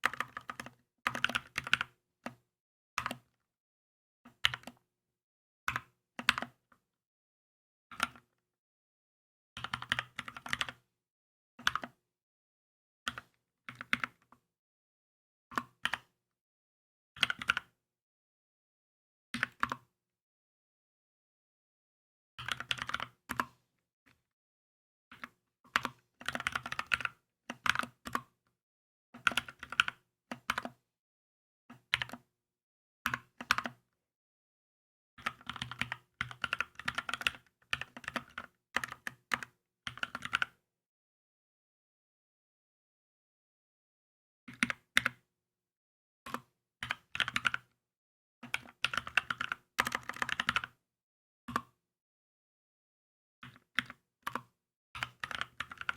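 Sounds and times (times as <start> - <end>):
mechanical keyboard typing: 35.2 - 39.2, 39.9 - 40.4, 46.8 - 47.6, 48.5 - 50.7, 55.0 - 55.9.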